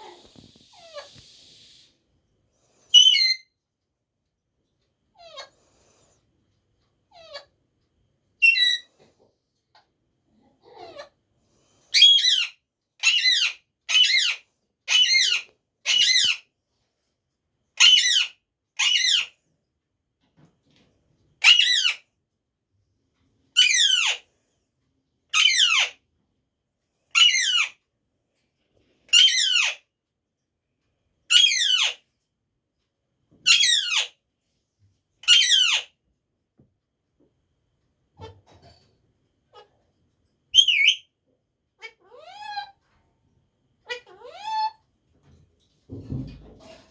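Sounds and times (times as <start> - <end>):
parrot high call: 2.9 - 3.5, 12.0 - 16.4, 17.8 - 19.3, 33.5 - 34.1, 35.2 - 35.9, 40.6 - 41.1.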